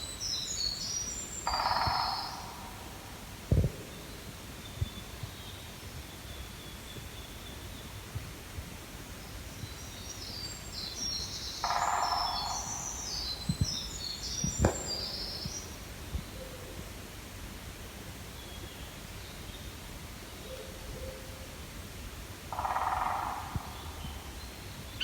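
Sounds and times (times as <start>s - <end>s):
songbirds chirping: 0.0s - 25.0s
woodpecker drumming: 1.4s - 2.9s, 11.6s - 13.0s.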